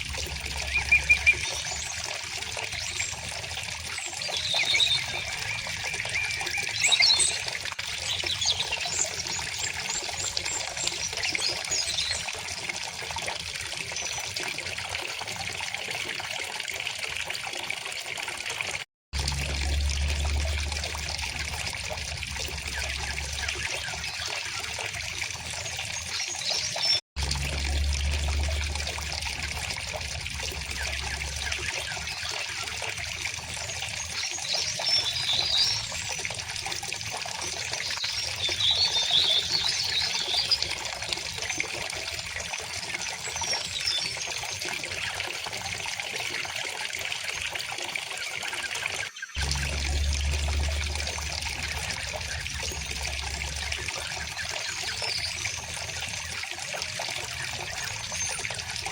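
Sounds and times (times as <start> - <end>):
stream flowing over stones: 0.0 - 58.9
birds chirping: 0.3 - 3.2
low rumble: 19.2 - 23.9, 27.2 - 32.0, 49.4 - 54.6.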